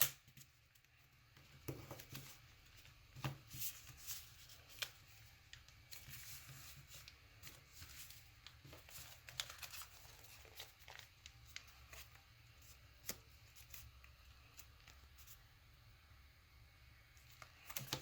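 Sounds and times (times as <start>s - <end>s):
low steady hum: 0.0s - 18.0s
paper rustling and crinkling: 1.6s - 15.4s.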